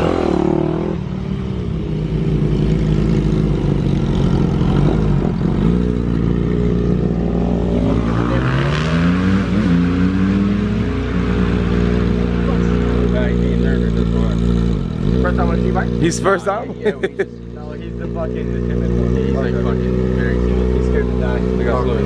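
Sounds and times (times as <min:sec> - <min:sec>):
dirt bike engine revving: 0:00.0 - 0:01.2, 0:02.1 - 0:16.6.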